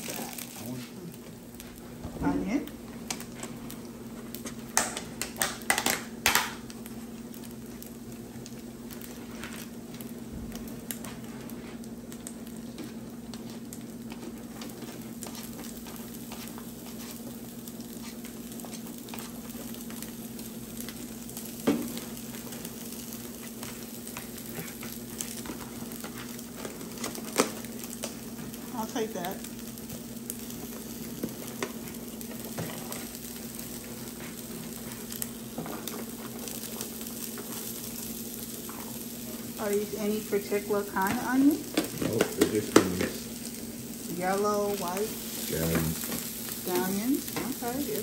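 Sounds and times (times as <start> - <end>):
rice sizzling on a griddle: 0.0 - 48.0.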